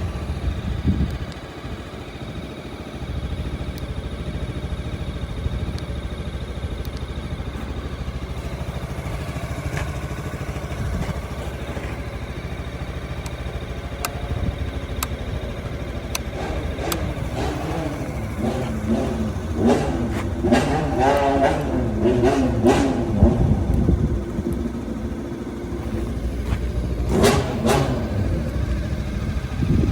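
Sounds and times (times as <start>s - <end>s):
scooter engine idling and revving: 0.0s - 29.9s.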